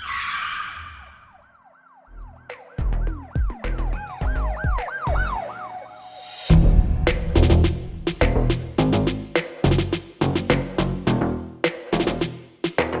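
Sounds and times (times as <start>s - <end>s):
music with wailing siren effect: 0.0s - 7.1s
full beat: 2.5s - 5.4s, 6.5s - 13.0s
whoosh: 5.3s - 9.5s
heavy bass hits: 6.5s - 11.3s.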